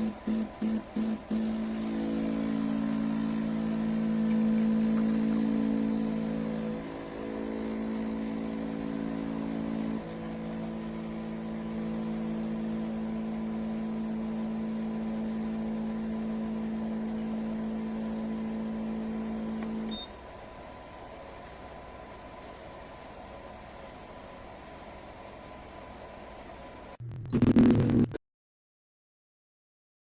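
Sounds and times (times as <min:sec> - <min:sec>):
machine humming: 0:00.0 - 0:20.0, 0:27.0 - 0:28.2.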